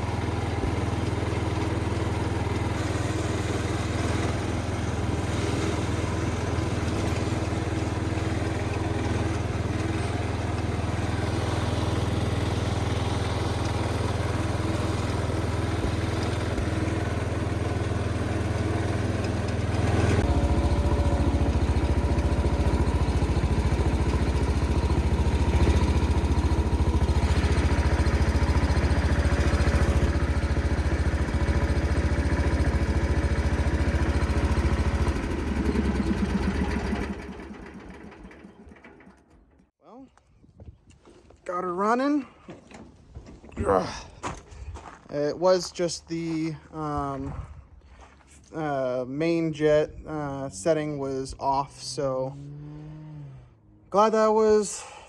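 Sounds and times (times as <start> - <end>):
small engine running: 0.0 - 39.7.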